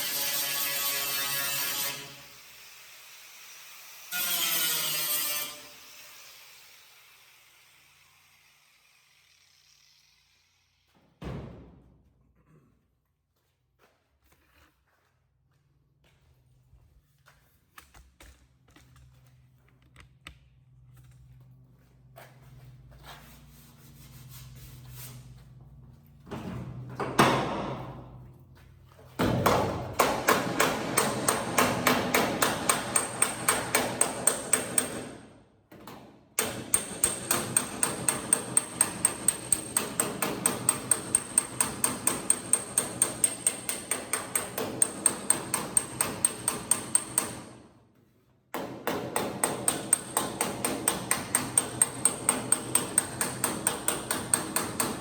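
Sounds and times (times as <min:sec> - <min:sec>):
hammer striking sheet metal: 0:29.2 - 0:35.3, 0:36.4 - 0:47.6, 0:48.6 - 0:55.0.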